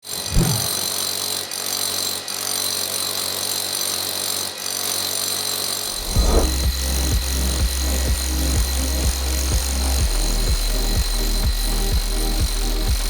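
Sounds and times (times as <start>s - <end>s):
power tool whining: 0.0s - 13.0s
music with deep bass beat: 6.5s - 13.0s.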